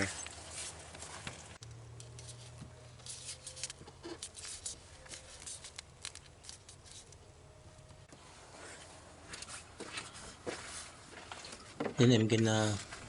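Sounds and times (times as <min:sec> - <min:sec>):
hose fitting clicking and scraping: 0:01.6 - 0:07.2.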